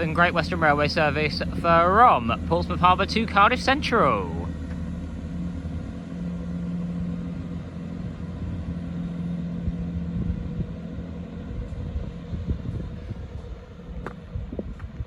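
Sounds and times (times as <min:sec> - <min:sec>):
diesel train drone: 0:00.0 - 0:15.0.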